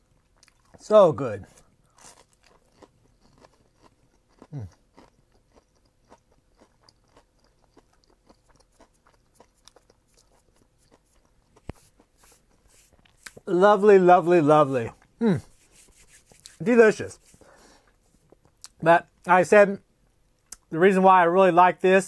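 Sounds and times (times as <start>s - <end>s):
crunchy chewing: 0.1s - 0.8s, 1.4s - 13.5s
person humming briefly: 15.2s - 15.6s.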